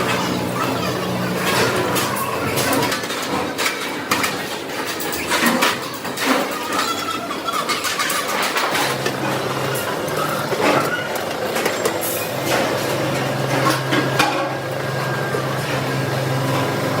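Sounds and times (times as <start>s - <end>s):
workshop machine humming: 0.0s - 17.0s
metalworking knocks and clatter: 1.4s - 14.6s.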